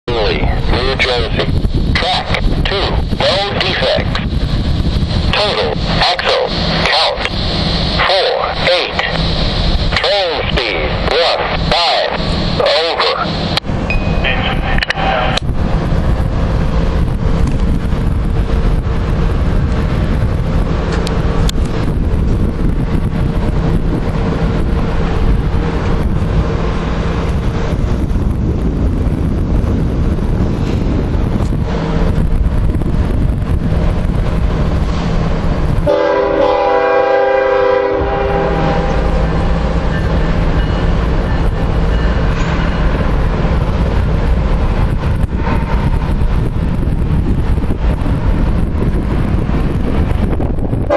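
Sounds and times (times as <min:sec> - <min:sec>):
freight train rumbling: 0:00.0 - 0:50.9
locomotive air horn: 0:35.8 - 0:39.4.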